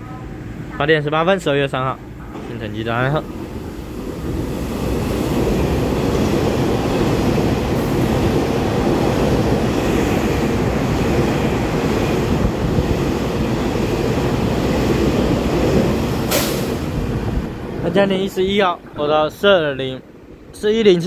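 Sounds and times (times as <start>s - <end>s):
train wheels rumbling on rails: 1.8s - 18.9s
rushing air: 3.2s - 17.9s.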